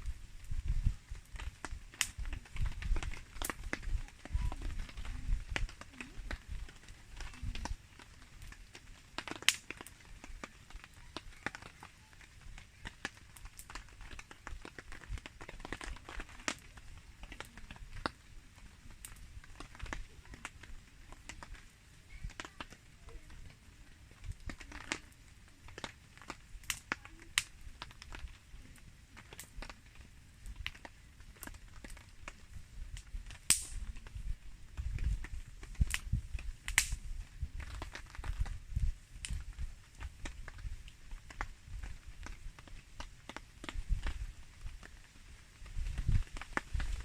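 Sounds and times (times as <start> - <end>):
campfire crackling and popping: 0.0 - 47.0.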